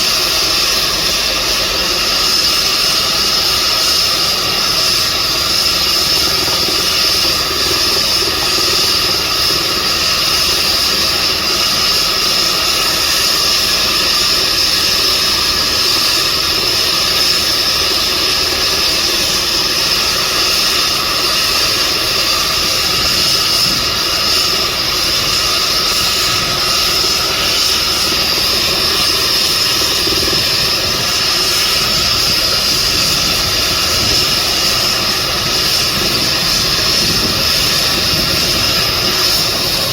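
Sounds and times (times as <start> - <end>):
engine and rotor noise: 0.0 - 39.9
helicopter turbine whine: 0.0 - 39.9.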